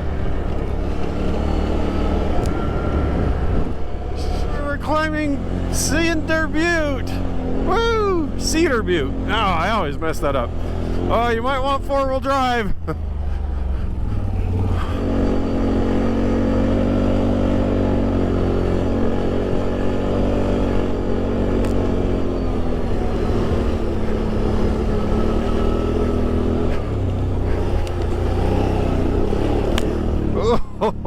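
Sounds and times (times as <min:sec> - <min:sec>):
atv engine pulling under load: 0:12.9 - 0:30.7.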